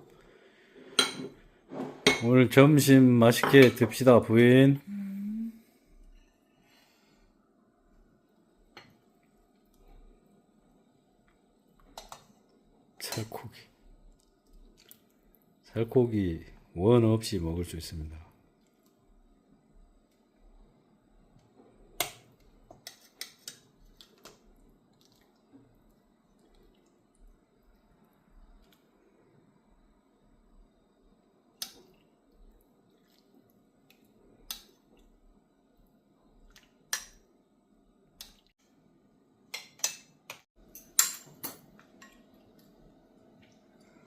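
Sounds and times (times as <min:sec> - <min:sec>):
faint steady hum: 0:00.0 - 0:44.0
utensils clinking on dishes: 0:39.5 - 0:42.3.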